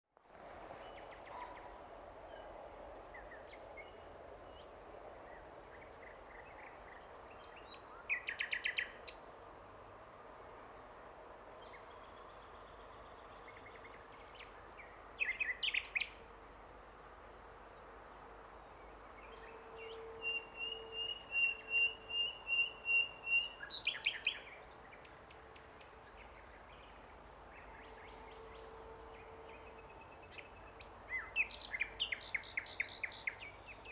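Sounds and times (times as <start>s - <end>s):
nightingale singing: 19.2s - 25.2s, 27.6s - 33.9s.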